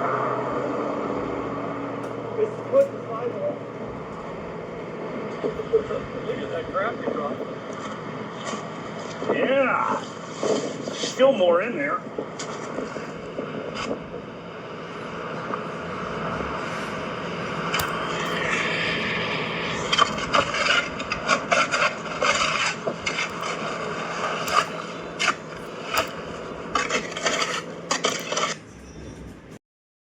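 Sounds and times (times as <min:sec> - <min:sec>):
steady low hum: 0:00.0 - 0:29.6
sharp knocks and clanks: 0:17.6 - 0:28.6
scraping and rubbing: 0:17.6 - 0:29.3.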